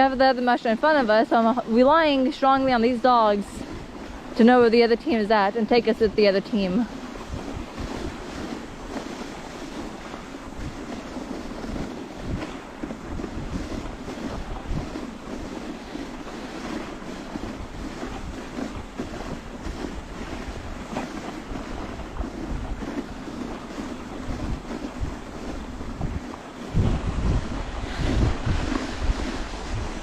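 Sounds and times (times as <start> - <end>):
sled bumps and knocks: 0.0 - 30.0
sled rushing hiss: 0.0 - 30.0
wind buffeting microphone: 0.0 - 30.0.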